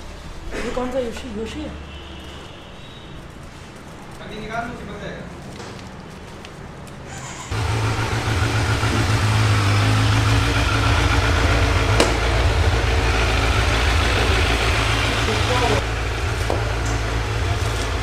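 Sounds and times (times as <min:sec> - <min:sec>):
motorcycle engine idling: 0:07.5 - 0:18.0.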